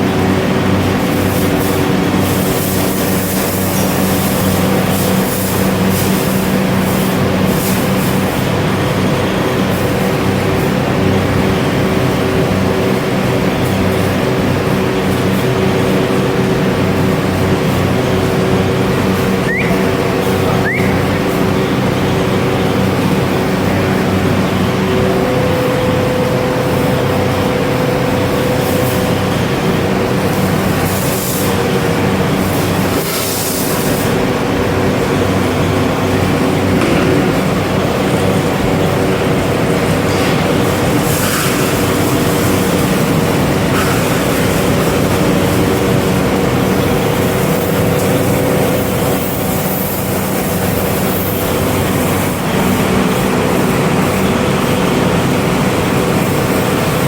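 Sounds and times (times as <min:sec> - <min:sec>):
machinery humming: 0:00.0 - 0:57.0
short rising chirps: 0:19.4 - 0:21.3.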